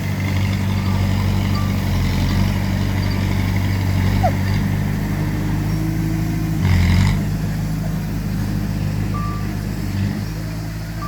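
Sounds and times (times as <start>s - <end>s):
heavy diesel engine running: 0.0s - 11.0s
reversing alarm beep: 9.1s - 9.5s.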